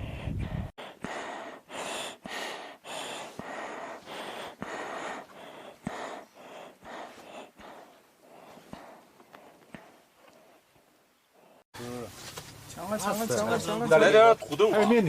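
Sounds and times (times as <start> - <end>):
person breathing hard: 0.0 - 10.7, 11.3 - 11.7.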